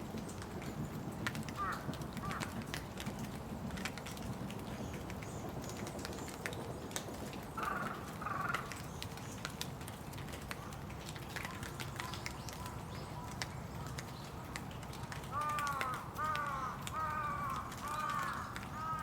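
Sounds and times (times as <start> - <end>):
raindrops ticking and dripping: 0.0 - 19.0.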